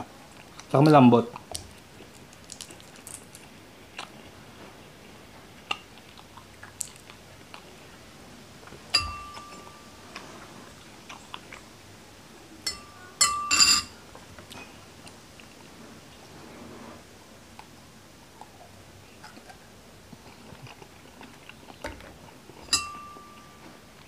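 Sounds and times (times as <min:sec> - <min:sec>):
metal spoon clinking on a dish: 0:08.9 - 0:09.9, 0:12.6 - 0:14.0, 0:22.6 - 0:23.6.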